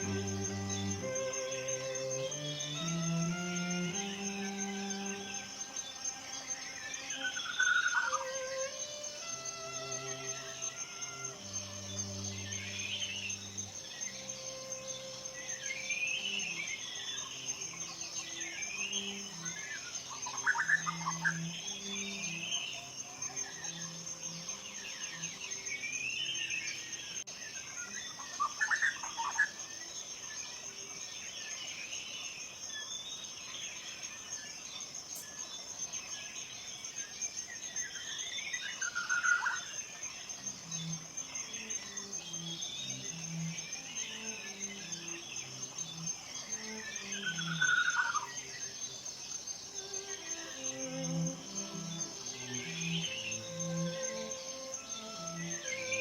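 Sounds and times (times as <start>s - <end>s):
soft background music: 0.0s - 27.3s, 39.6s - 48.9s, 49.7s - 56.0s
birds chirping: 0.0s - 30.2s, 37.6s - 56.0s
high insect-like trill: 0.0s - 31.3s, 33.5s - 56.0s.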